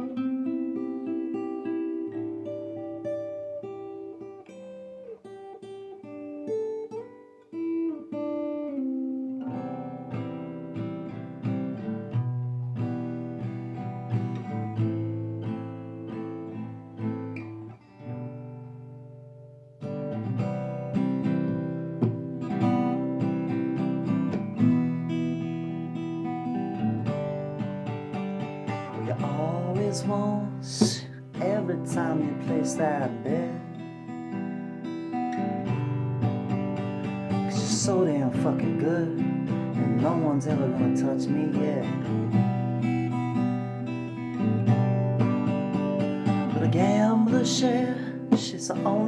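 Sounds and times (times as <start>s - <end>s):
acoustic guitar chords: 0.0s - 49.0s.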